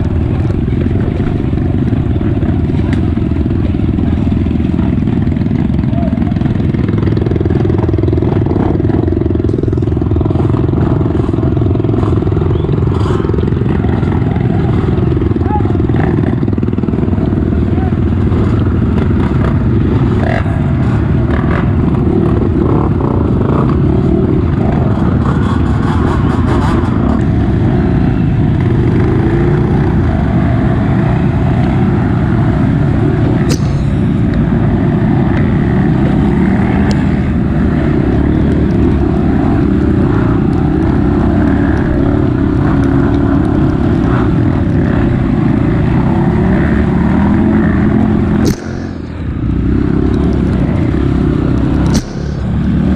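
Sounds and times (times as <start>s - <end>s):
motorcycle engine running: 0.0s - 52.9s
sharp clicks: 33.5s - 34.4s, 48.4s - 49.2s, 51.5s - 52.8s.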